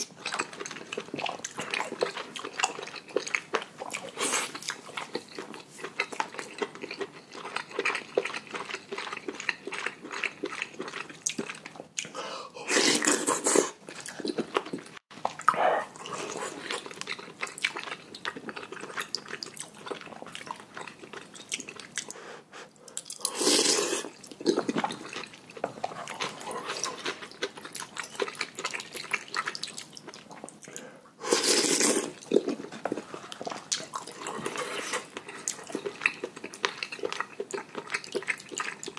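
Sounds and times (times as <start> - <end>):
wet chewing and mouth clicks: 0.0 - 12.2, 12.8 - 22.2, 22.8 - 38.9
slurping noodles: 12.6 - 14.3, 23.2 - 25.2, 31.2 - 35.9.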